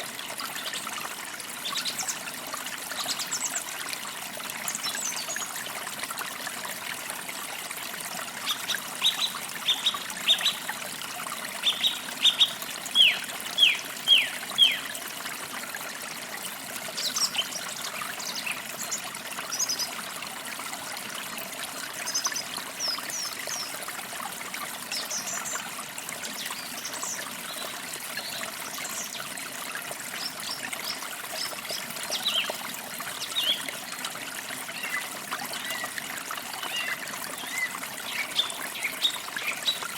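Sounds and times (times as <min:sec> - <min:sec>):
stream trickling: 0:00.0 - 0:39.9
birds singing: 0:08.5 - 0:10.6, 0:11.6 - 0:14.9, 0:30.2 - 0:32.6, 0:33.2 - 0:33.7, 0:36.6 - 0:39.9.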